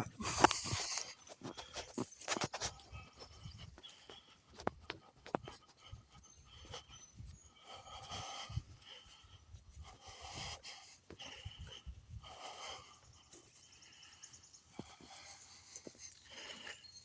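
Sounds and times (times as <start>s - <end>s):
person breathing: 0.2s - 16.9s.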